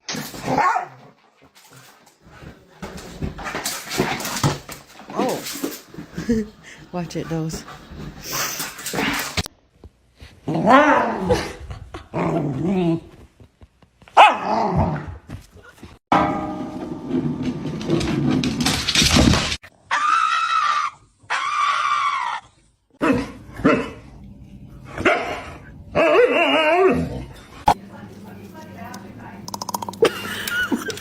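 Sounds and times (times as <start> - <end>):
dogs barking: 0.5 - 1.0, 14.2 - 14.7, 25.0 - 26.9.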